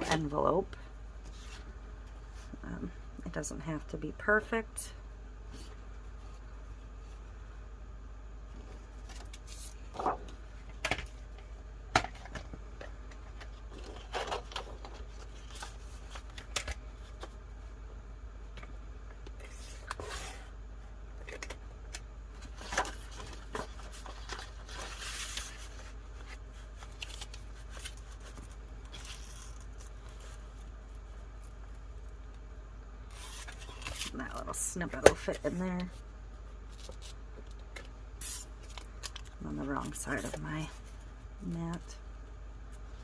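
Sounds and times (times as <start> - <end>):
paper rustling: 22.4 - 30.8.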